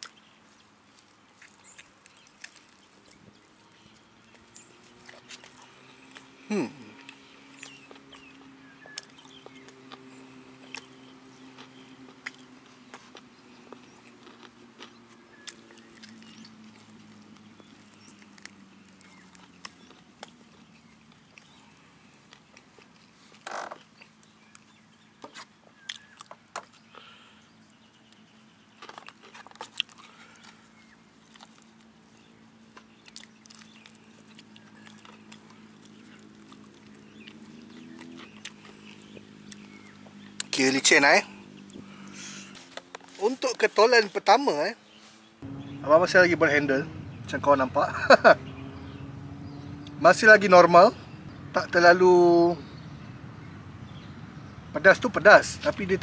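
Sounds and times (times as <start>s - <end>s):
chewing crispy chicken: 0.0s - 28.2s, 28.8s - 43.6s.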